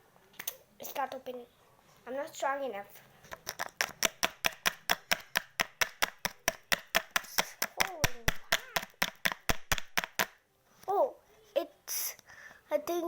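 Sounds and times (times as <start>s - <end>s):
plastic bottle tapped hard: 3.4s - 10.4s.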